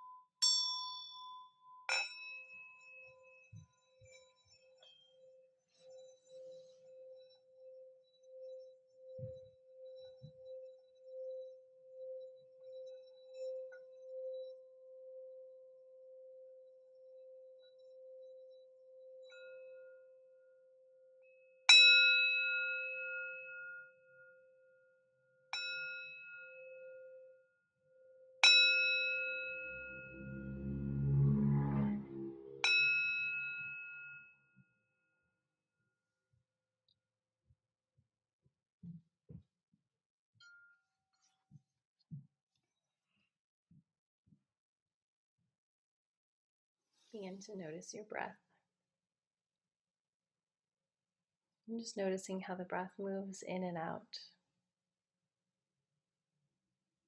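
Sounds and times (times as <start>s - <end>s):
singing bowl humming: 29.1s - 33.0s
higher singing bowl ringing: 29.3s - 33.0s.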